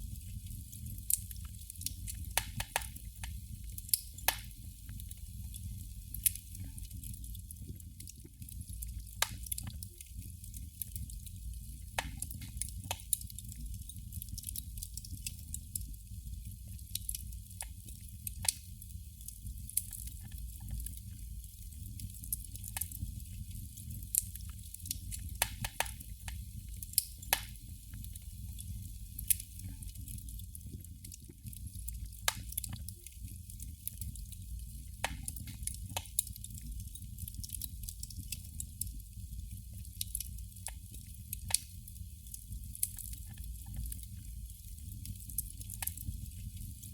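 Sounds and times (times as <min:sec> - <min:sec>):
candle wick crackling: 0:00.0 - 0:15.9, 0:16.9 - 0:46.9.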